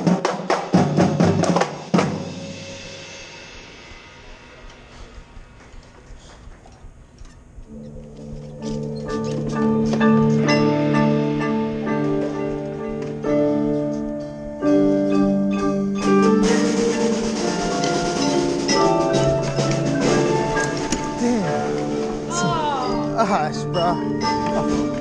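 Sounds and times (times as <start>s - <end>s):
drum strokes: 0.0s - 25.0s
mallet keyboard notes: 7.7s - 25.0s.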